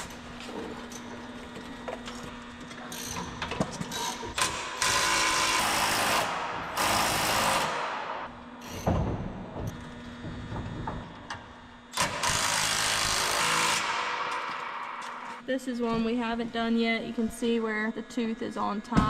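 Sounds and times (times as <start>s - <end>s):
power tool running: 4.0s - 8.9s, 11.9s - 15.4s.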